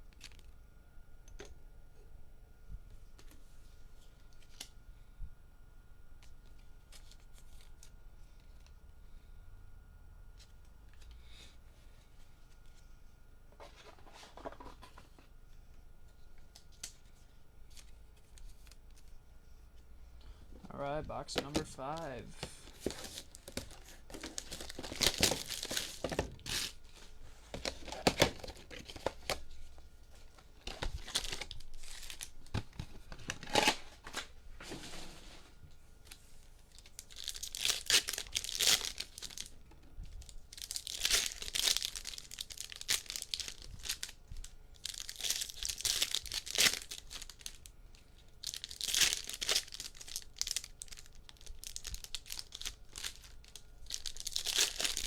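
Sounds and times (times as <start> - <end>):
foil packs crinkling: 21.1 - 29.6, 30.2 - 34.8, 36.5 - 39.6, 40.2 - 55.0
plastic wrapping being torn open: 21.4 - 26.9, 27.6 - 29.4, 30.6 - 34.3, 36.7 - 39.6, 40.2 - 47.7, 48.4 - 55.0.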